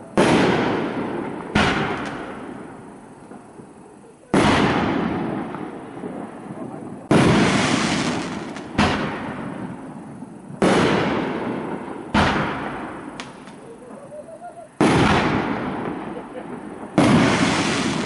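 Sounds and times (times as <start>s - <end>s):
firework booms echoing: 0.0s - 18.0s.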